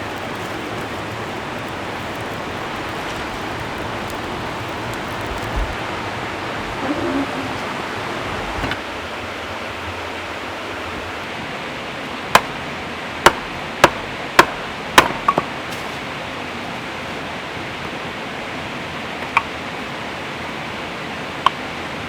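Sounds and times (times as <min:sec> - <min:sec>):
steady rushing hiss: 0:00.0 - 0:22.0
axe chopping wood: 0:12.4 - 0:12.6, 0:13.3 - 0:15.9.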